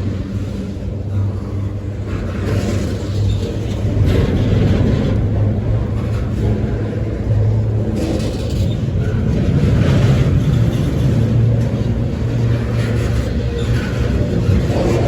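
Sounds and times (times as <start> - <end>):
freight train passing: 0.0 - 15.0.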